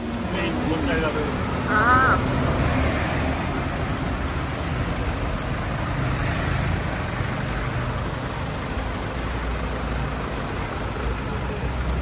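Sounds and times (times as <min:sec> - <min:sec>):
street traffic: 0:00.0 - 0:12.0
truck engine running: 0:00.0 - 0:12.0.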